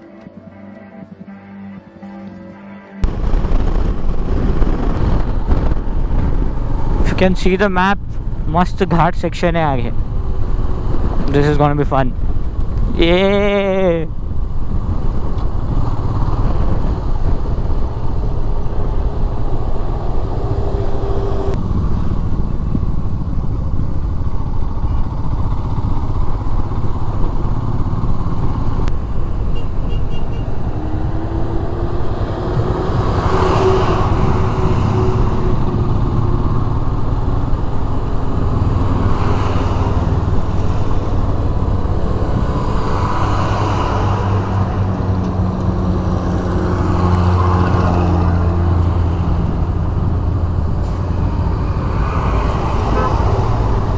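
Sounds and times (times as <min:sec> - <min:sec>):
road and wind noise: 0:00.0 - 0:53.9
motorcycle engine running: 0:14.2 - 0:31.0.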